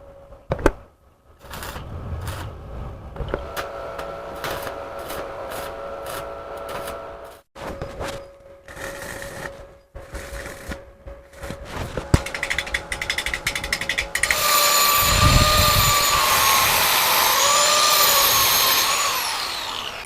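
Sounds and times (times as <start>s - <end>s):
power tool whining: 8.7s - 20.0s
rapid clicking: 12.0s - 14.6s.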